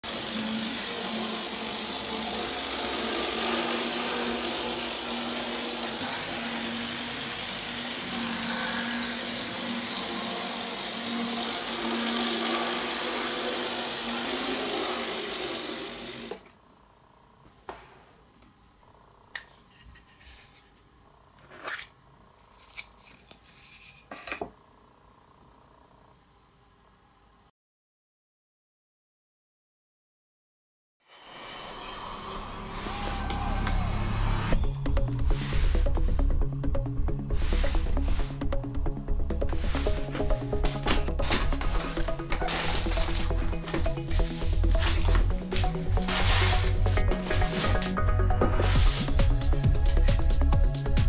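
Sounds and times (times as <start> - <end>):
electric motor whirring: 0.0 - 16.5, 31.5 - 51.0
low hum: 31.2 - 50.6.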